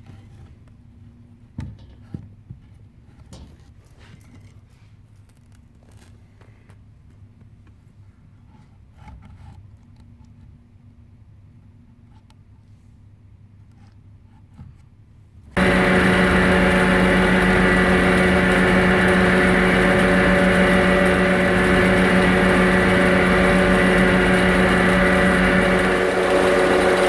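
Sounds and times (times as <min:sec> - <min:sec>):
power tool humming: 0:15.6 - 0:27.0.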